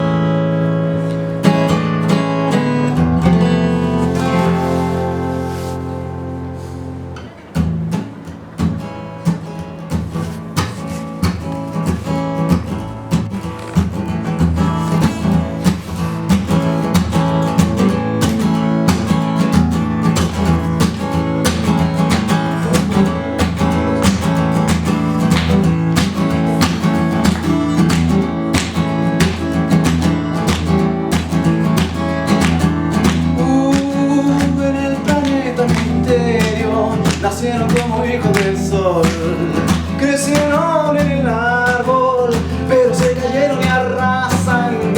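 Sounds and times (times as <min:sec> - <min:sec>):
acoustic guitar strumming: 0:00.0 - 0:44.9.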